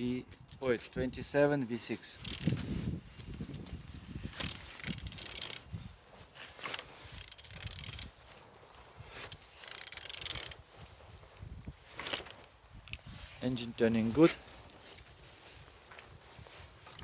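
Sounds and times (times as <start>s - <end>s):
ratchet wrench clicking: 2.2s - 2.6s, 4.4s - 5.7s, 7.1s - 8.1s, 9.2s - 10.6s.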